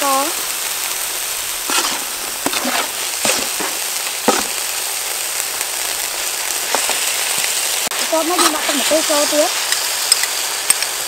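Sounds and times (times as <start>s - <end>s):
meat sizzling in hot oil: 0.0s - 11.0s
metal spatula knocking and scraping: 1.7s - 4.6s.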